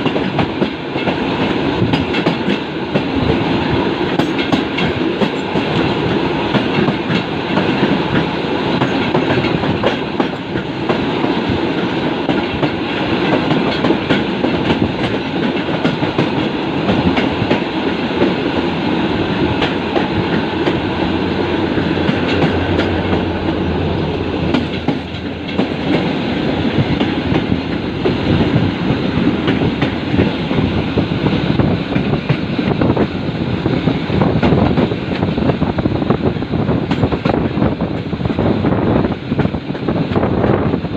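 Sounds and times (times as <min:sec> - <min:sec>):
passenger train rumbling past: 0:00.0 - 0:40.9
wheels clacking over rail joints: 0:21.7 - 0:26.2.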